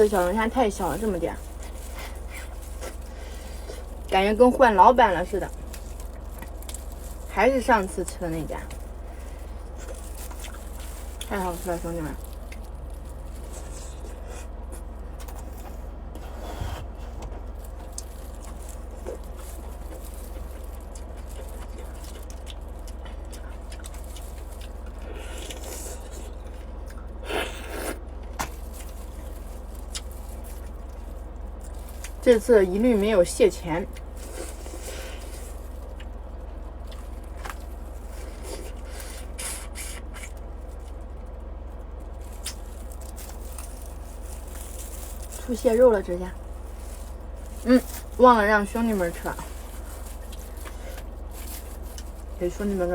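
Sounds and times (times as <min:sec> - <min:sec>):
shells crackling and rustling: 0:00.0 - 0:14.0, 0:17.4 - 0:25.0, 0:28.2 - 0:33.2, 0:40.4 - 0:52.9
steady low hum: 0:00.0 - 0:52.9.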